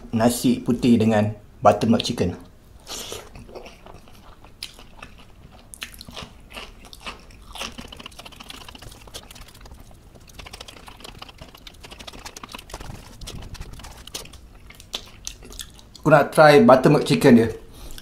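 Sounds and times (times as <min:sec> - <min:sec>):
close chewing with wet mouth clicks: 0:02.8 - 0:16.1.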